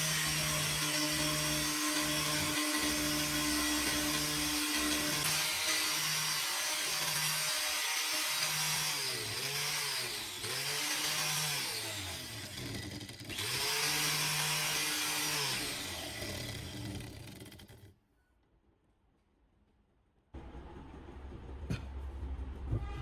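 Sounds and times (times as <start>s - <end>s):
angle grinder grinding: 0.0s - 17.9s.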